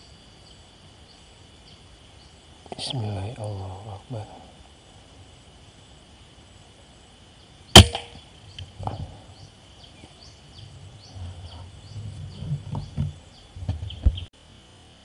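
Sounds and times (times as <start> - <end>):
high insect drone: 0.0 - 15.0
air rifle shot: 7.8 - 8.2.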